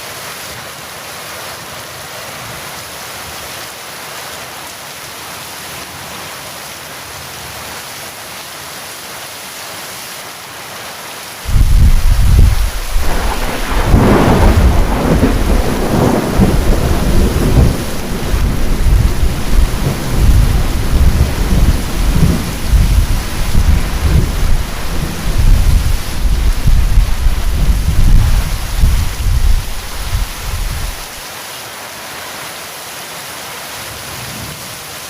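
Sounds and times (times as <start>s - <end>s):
heavy rain: 0.0s - 35.0s
thunderclap rumbling: 11.5s - 31.2s.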